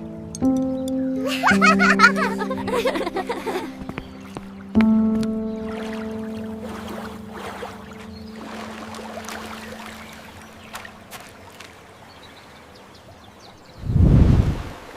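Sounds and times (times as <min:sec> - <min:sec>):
held music notes: 0:00.0 - 0:11.1
river water running: 0:01.2 - 0:13.8, 0:14.4 - 0:14.9.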